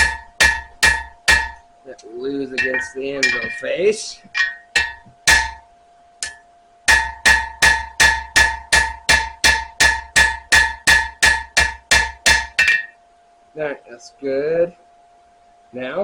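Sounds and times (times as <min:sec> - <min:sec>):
hammer ringing on steel blade: 0:02.6 - 0:03.7, 0:04.4 - 0:05.6, 0:06.2 - 0:13.0.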